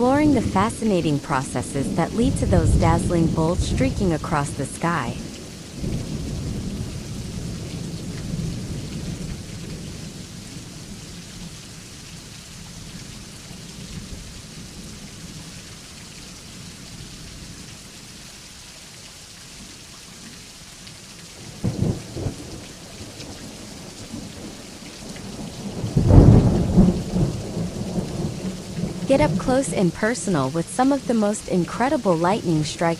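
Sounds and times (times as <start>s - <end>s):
deep thunderclap: 0.0s - 11.0s, 25.2s - 30.0s
thunder rumbling: 0.0s - 11.5s, 21.4s - 32.9s
steady rain: 0.0s - 32.9s
sharp thunder crack: 25.6s - 29.5s.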